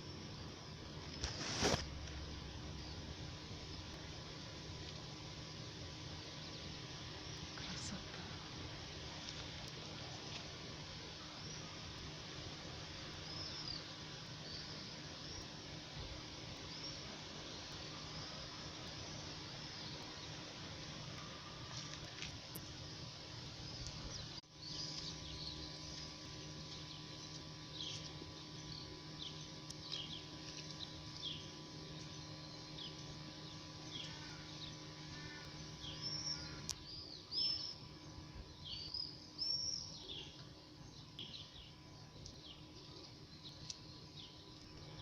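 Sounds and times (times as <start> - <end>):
low background hum: 0.0 - 45.0
small birds chirping: 0.0 - 45.0.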